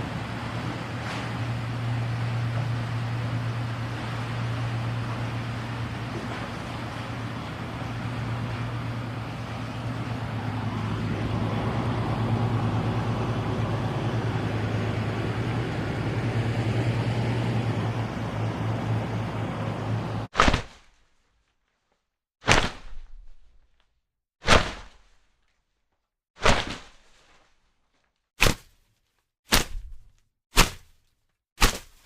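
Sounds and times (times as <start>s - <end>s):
mechanical hum: 0.0s - 20.3s.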